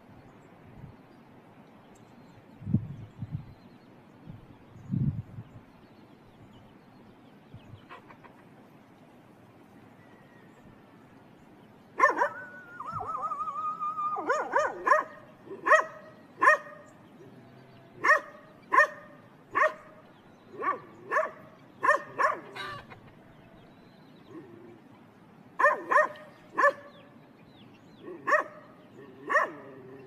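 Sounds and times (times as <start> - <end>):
dog barking: 12.0 - 12.5, 14.2 - 16.9, 18.0 - 19.9, 20.6 - 22.8, 25.6 - 27.0, 28.0 - 29.8.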